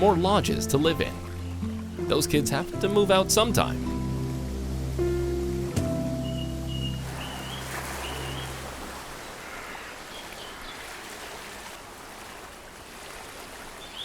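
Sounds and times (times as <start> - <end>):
low background music: 0.0 - 9.0
stream water flowing: 0.0 - 14.0.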